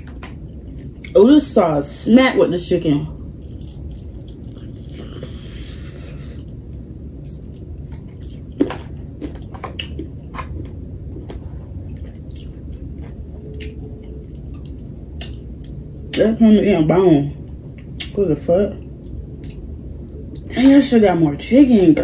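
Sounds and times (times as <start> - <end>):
steady low hum: 0.0 - 22.0
person chewing food: 3.2 - 15.9, 18.8 - 20.5.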